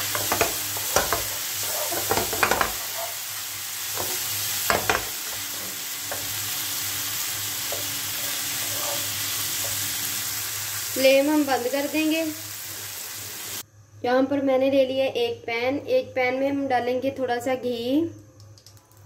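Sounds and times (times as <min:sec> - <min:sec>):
wooden spatula scraping a pan: 0:00.0 - 0:03.1, 0:07.6 - 0:09.9
meat sizzling in a pan: 0:00.0 - 0:13.6.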